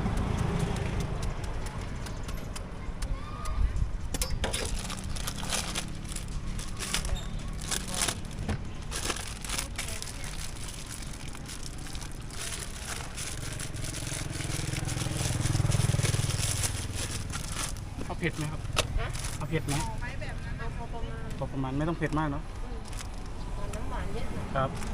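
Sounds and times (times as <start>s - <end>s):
low hum of traffic: 0.0s - 24.9s
fruit being handled and packed: 4.2s - 20.0s.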